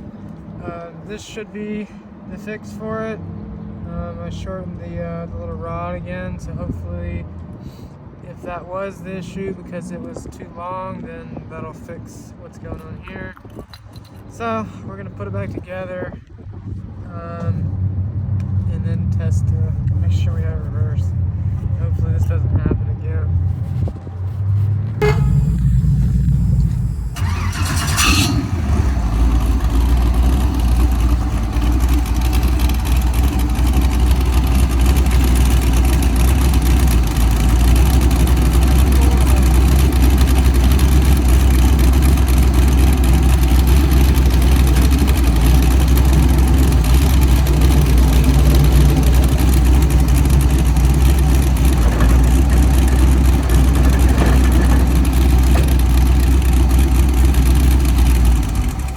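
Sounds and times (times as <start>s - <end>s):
engine starting and idling: 25.0s - 58.9s.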